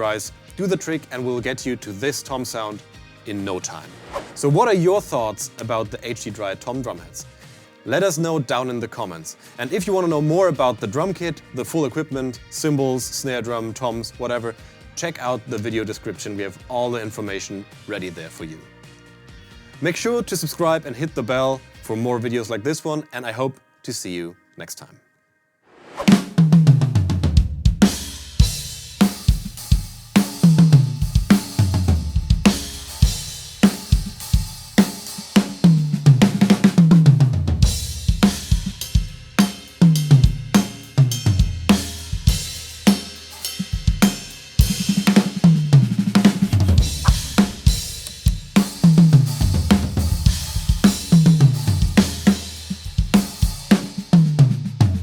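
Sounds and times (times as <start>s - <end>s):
drum kit playing: 0.0s - 1.6s, 3.3s - 5.4s, 25.9s - 55.0s
tom fills: 3.3s - 5.1s, 25.8s - 55.0s.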